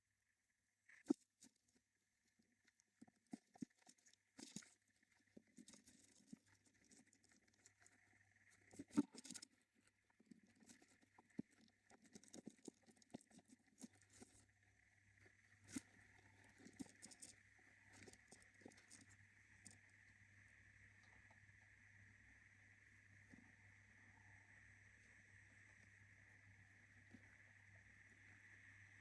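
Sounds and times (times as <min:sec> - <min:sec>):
faint steady hum: 0:00.0 - 0:29.0
bird scratching and tapping: 0:03.0 - 0:14.4, 0:15.7 - 0:19.8.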